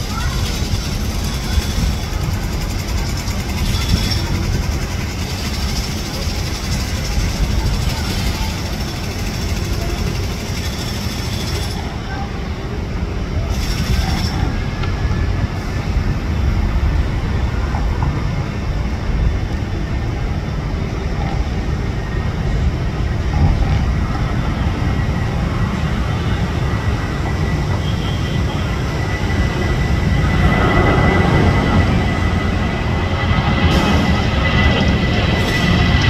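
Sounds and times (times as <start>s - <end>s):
jet engines rumbling: 0.0s - 36.0s
faint high whine: 9.8s - 36.0s.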